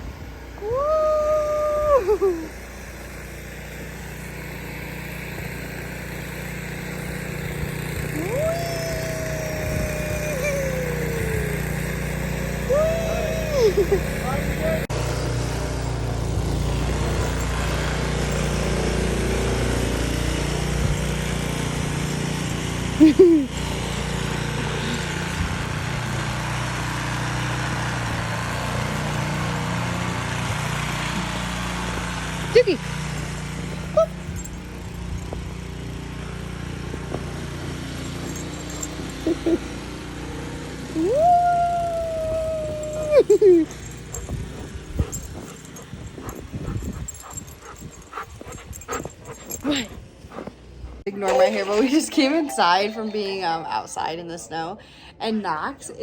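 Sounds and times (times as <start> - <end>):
small engine running steadily: 0.0 - 51.8
woman calling woo: 0.6 - 2.5, 8.1 - 14.9, 33.9 - 34.2, 40.9 - 43.8.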